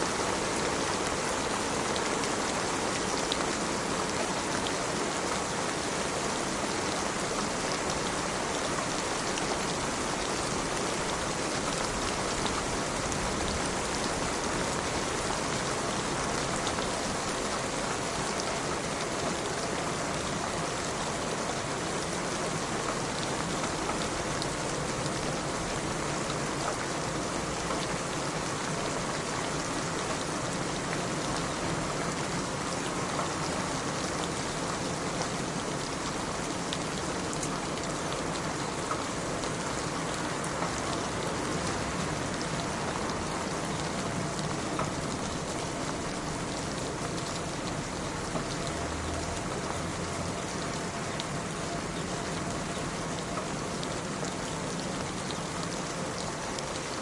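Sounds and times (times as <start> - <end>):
steady rain: 0.0 - 57.0
raindrop ticks: 34.8 - 57.0.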